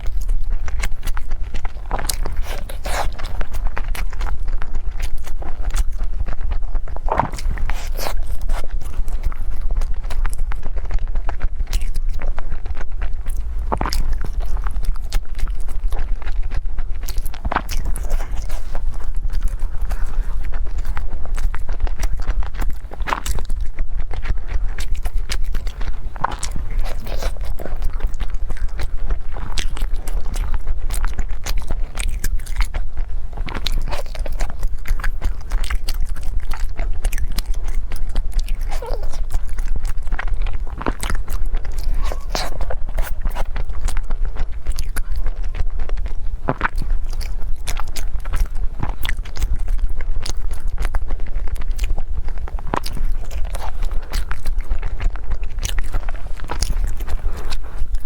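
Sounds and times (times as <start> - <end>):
chewing and biting food: 0.0 - 58.0.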